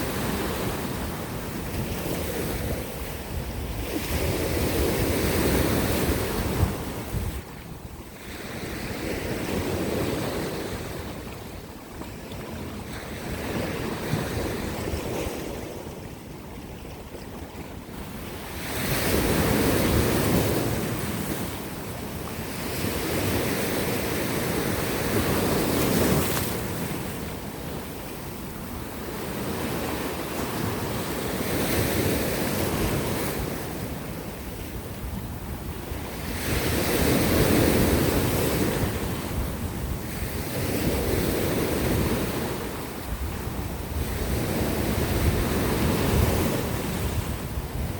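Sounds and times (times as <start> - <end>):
sea surf washing against rocks: 17.2 - 47.9.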